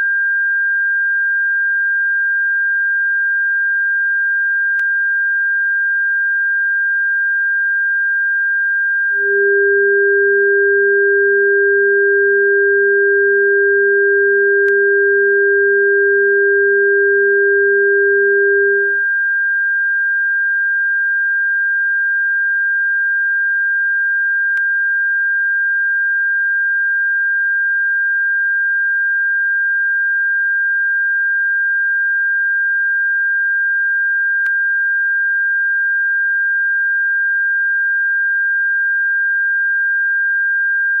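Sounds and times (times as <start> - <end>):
lower electronic tone: 9.1 - 19.0.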